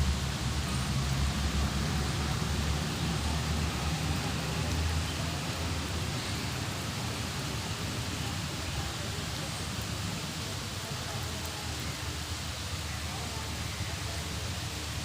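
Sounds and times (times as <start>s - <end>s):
drizzle on leaves: 0.0s - 15.0s.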